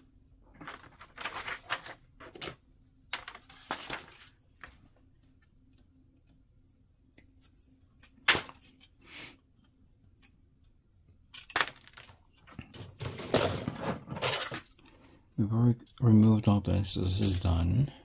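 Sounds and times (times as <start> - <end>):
faint steady hum: 0.0 - 18.0
plastic parts clicking and rustling: 11.1 - 14.8.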